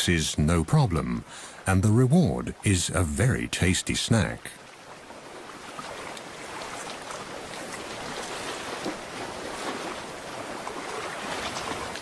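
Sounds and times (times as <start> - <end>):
sea water washing on rocky shore: 4.6 - 12.0.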